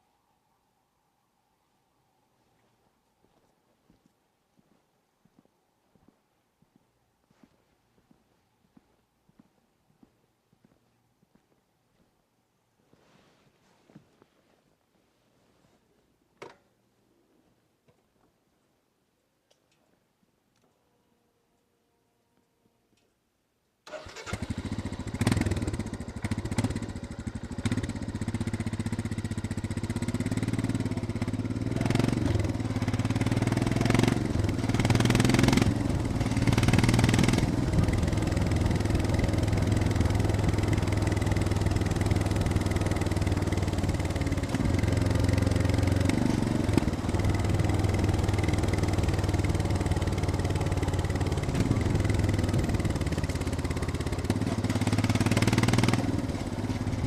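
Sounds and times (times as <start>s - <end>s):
motorcycle engine running: 24.0s - 57.0s.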